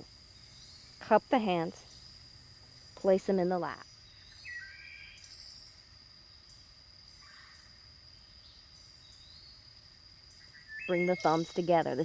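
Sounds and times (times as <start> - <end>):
high-pitched insect trill: 0.0 - 12.0
bird chirps: 3.8 - 5.8, 10.3 - 12.0.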